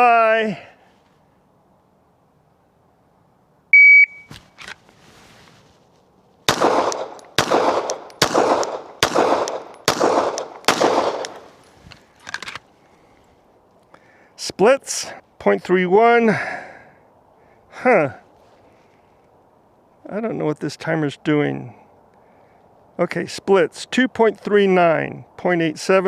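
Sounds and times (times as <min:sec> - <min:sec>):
shot timer beep: 0:03.8 - 0:04.3
pistol shots: 0:06.5 - 0:11.6.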